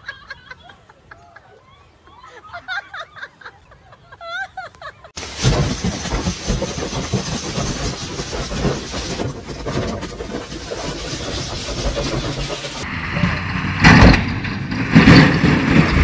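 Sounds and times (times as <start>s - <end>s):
engine and road noise: 5.2s - 16.0s.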